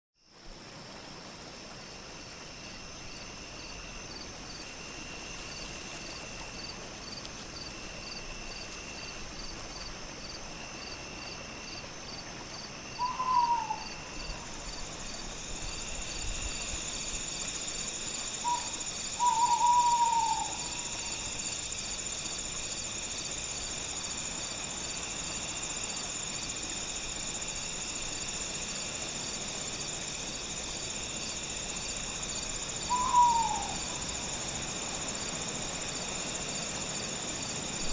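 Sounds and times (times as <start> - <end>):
crickets chirping: 0.2 - 37.9
faint breeze: 0.2 - 37.9
owl hooting: 13.0 - 14.4, 18.4 - 21.2, 32.9 - 33.8.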